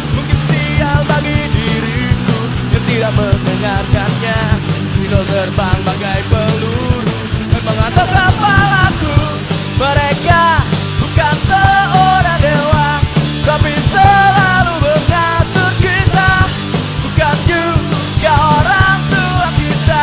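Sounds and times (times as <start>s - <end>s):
punk rock band playing: 0.0s - 20.0s
lead guitar line bending in pitch: 4.5s - 11.0s.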